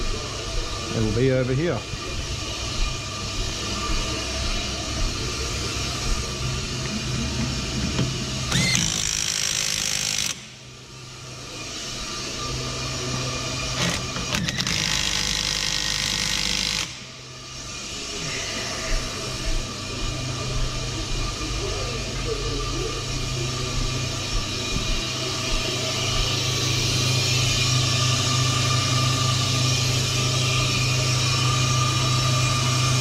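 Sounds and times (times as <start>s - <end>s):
brake lathe humming: 2.0s - 18.2s, 22.7s - 33.0s
harsh hissing noise: 8.2s - 33.0s.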